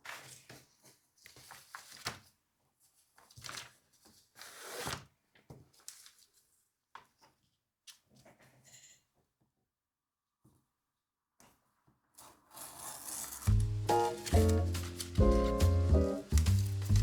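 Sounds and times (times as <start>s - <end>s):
paper rustling: 0.0s - 6.5s, 12.5s - 17.0s.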